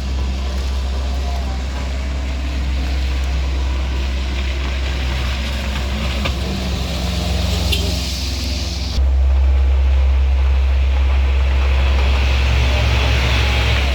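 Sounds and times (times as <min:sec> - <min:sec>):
vehicle engine running: 0:00.0 - 0:13.9.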